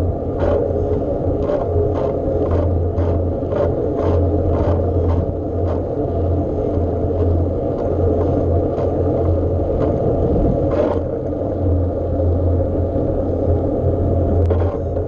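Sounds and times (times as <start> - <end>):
wind and road noise: 0.0 - 15.0
bike clicks and rattles: 0.2 - 11.5, 14.3 - 15.0.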